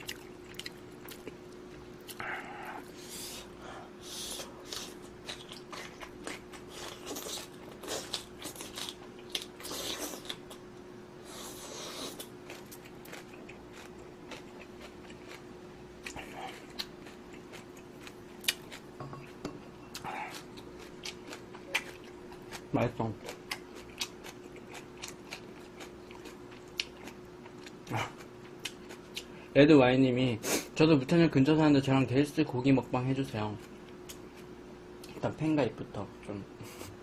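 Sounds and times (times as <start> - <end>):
person chewing noodles: 0.0 - 29.5
faint steady hum: 0.0 - 37.0.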